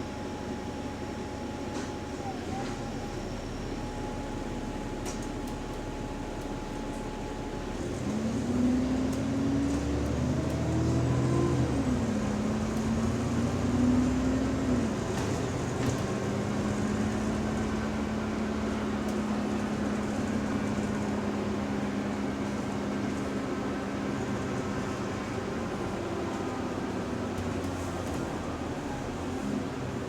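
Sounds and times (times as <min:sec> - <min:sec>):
bus drivetrain noise: 0:00.0 - 0:30.0.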